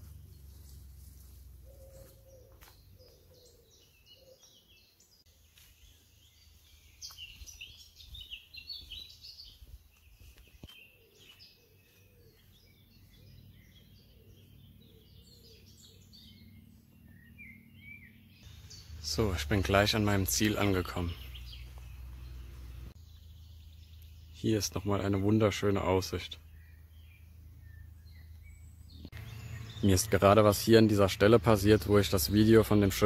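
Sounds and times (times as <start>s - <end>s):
wild birds chirping and singing: 0.0s - 33.0s.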